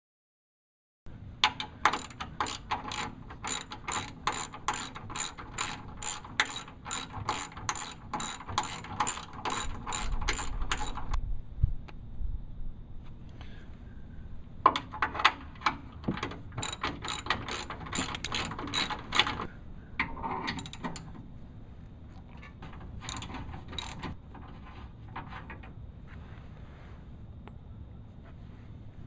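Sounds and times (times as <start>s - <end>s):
ratchet wrench clicking: 1.4s - 11.2s, 16.6s - 19.5s, 20.6s - 21.1s, 23.0s - 24.2s.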